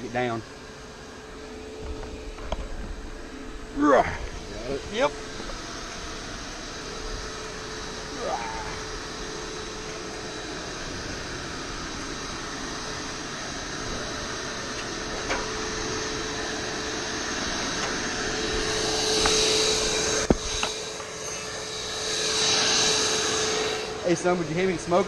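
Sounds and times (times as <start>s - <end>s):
vacuum motor humming: 0.0s - 25.0s.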